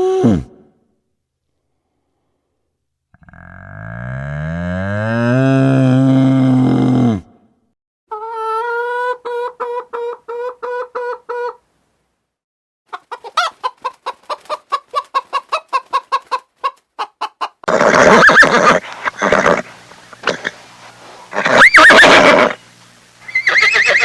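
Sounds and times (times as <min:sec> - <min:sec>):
chickens clucking: 0:08.1 - 0:11.6, 0:12.9 - 0:17.7
harsh chicken call: 0:08.1 - 0:11.6, 0:12.9 - 0:20.6, 0:21.3 - 0:22.6, 0:23.2 - 0:24.0.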